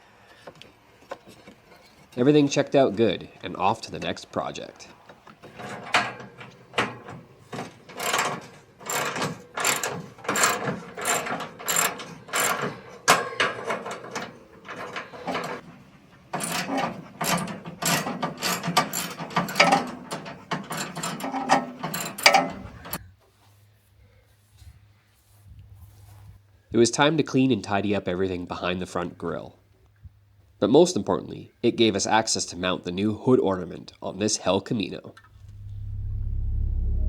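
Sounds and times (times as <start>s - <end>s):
metallic knocks and clanks: 5.4s - 15.7s, 16.3s - 23.0s
ratchet wrench clicking: 8.9s - 12.7s
faint low hum: 35.3s - 37.0s.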